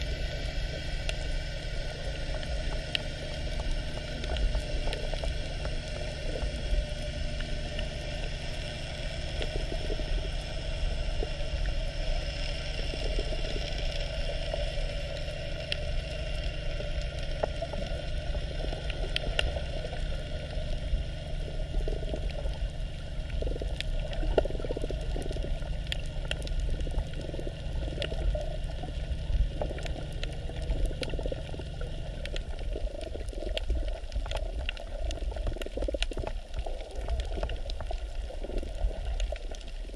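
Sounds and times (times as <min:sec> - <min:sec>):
steady low hum: 0:00.0 - 0:39.9
water noise: 0:00.0 - 0:39.9.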